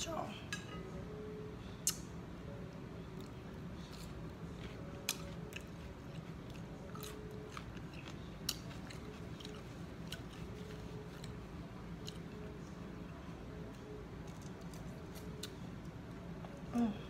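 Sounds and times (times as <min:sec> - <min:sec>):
person chewing crunchy food: 0:03.2 - 0:11.4.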